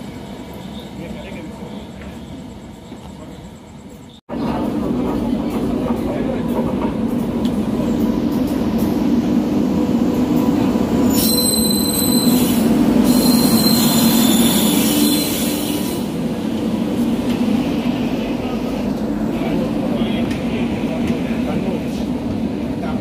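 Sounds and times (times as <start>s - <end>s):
train wheels rumbling: 0.0s - 23.0s
high-pitched wheel squeal: 11.1s - 16.0s.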